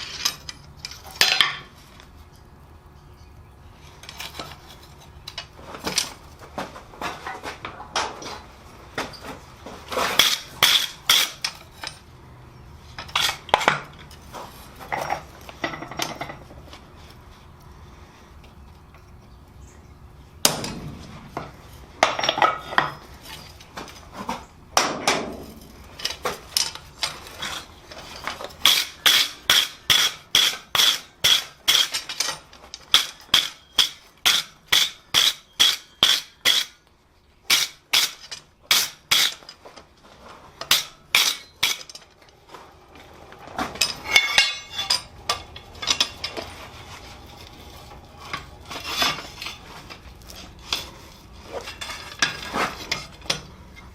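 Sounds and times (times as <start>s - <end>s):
metal clanks and clinks: 14.8s - 16.5s, 40.6s - 42.4s, 43.0s - 46.7s, 48.2s - 50.1s, 50.7s - 53.9s
hammer striking steel on anvil: 43.8s - 46.2s.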